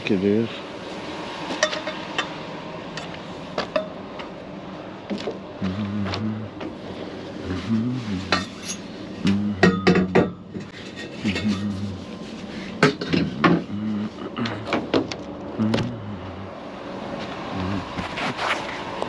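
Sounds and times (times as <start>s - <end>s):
low hum: 1.2s - 18.9s
scrap metal clanking and rattling: 8.3s - 9.0s, 9.7s - 11.8s, 12.6s - 13.7s.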